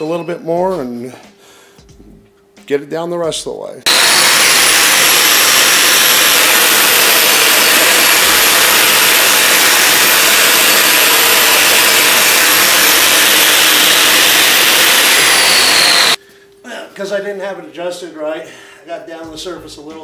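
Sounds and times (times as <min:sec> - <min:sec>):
grinder grinding concrete: 0:03.9 - 0:16.2.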